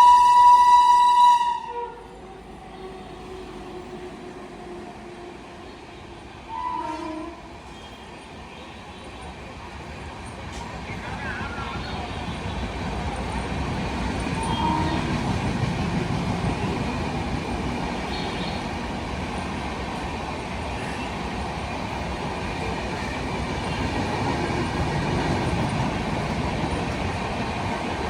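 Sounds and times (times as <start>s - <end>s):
train wheels rumbling past: 9.7s - 28.0s.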